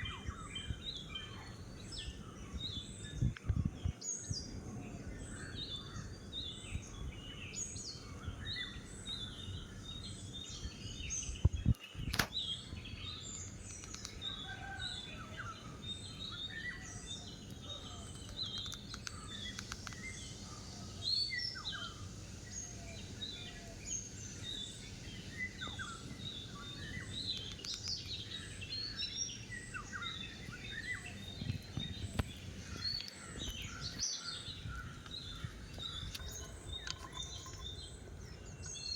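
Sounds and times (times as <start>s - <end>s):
many small birds chirping: 0.0s - 38.9s
sharp click: 12.1s - 12.4s.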